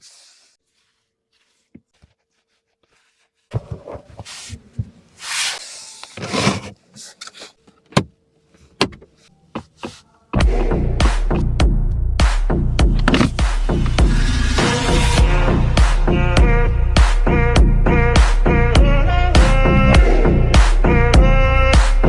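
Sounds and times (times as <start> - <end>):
electronic music with heavy beat: 10.4 - 22.0.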